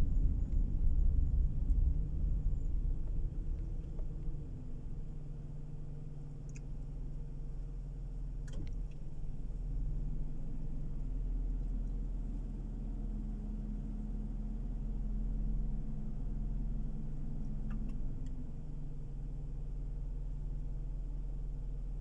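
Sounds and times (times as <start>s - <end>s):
car interior rumble: 0.0s - 12.0s
faint steady hum: 0.0s - 22.0s
light ticks: 6.4s - 7.0s, 8.4s - 9.2s, 17.4s - 18.4s.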